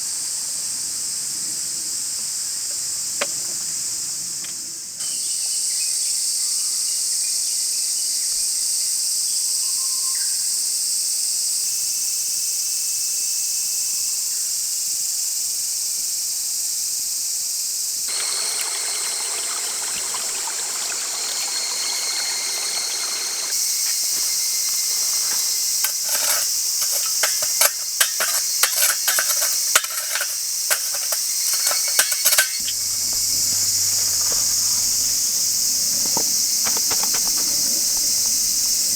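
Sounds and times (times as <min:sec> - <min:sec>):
insect chorus buzzing: 0:00.0 - 0:08.9, 0:14.3 - 0:38.9
rustling: 0:18.1 - 0:38.4
sharp clicks and crackles: 0:25.0 - 0:37.7.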